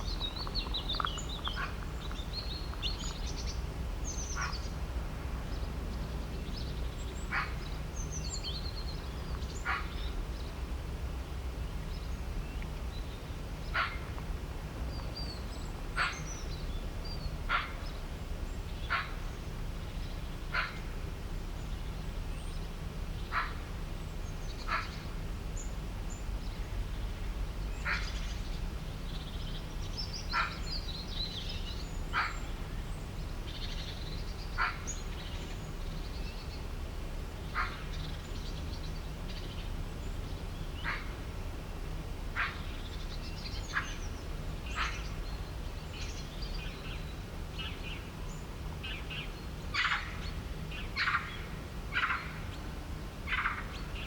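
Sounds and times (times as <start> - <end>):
low steady rumble: 0.0 - 54.0.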